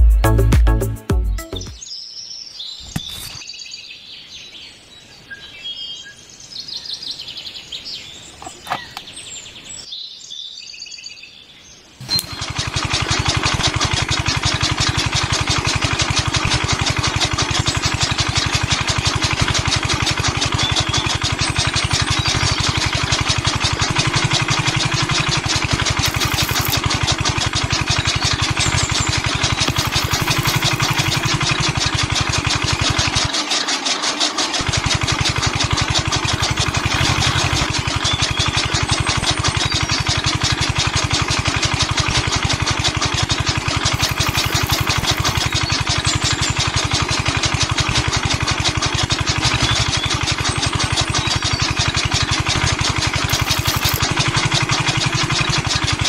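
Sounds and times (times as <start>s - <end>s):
birds chirping: 1.7s - 12.4s, 27.9s - 31.7s, 43.9s - 46.9s
small electric motor chattering: 12.0s - 56.0s.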